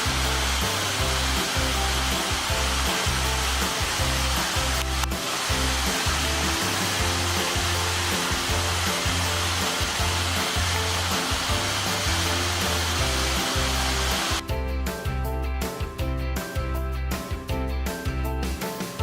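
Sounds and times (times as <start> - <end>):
waterfall rushing: 0.0 - 14.4
background music with bass line: 0.0 - 19.0.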